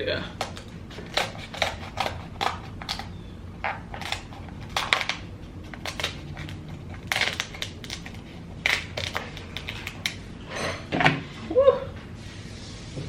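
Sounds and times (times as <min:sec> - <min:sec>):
crab shell cracking: 0:00.4 - 0:10.3.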